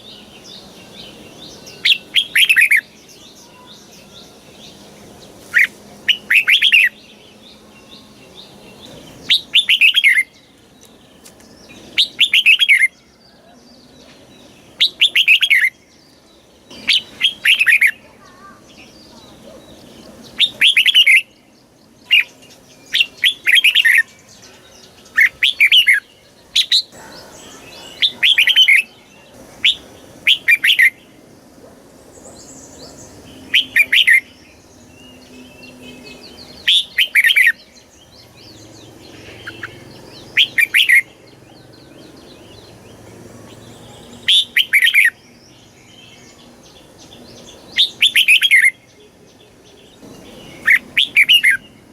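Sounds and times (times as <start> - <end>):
bird singing warbled phrases: 0.0 - 51.9.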